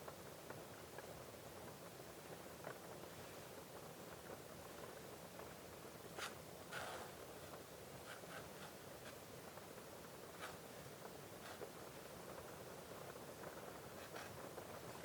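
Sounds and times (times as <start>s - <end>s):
pen nib scratching on paper: 6.2s - 7.2s, 8.0s - 9.2s, 10.4s - 10.6s, 11.4s - 11.8s, 14.0s - 14.4s.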